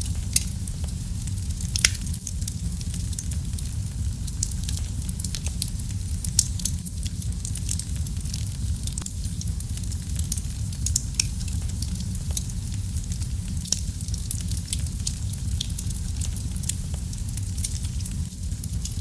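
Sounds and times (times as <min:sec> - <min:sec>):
fire popping and snapping: 0:00.0 - 0:19.0
wood fire crackling: 0:00.0 - 0:19.0.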